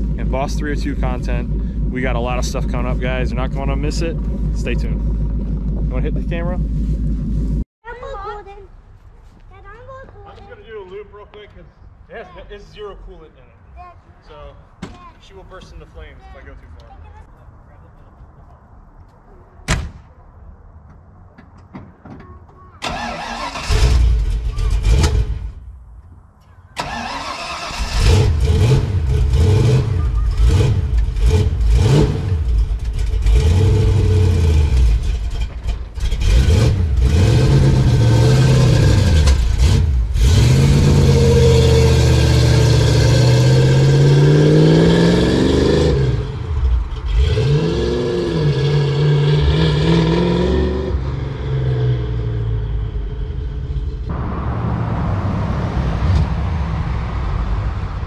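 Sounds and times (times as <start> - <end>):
car engine revving: 0.0 - 7.6, 26.8 - 58.0.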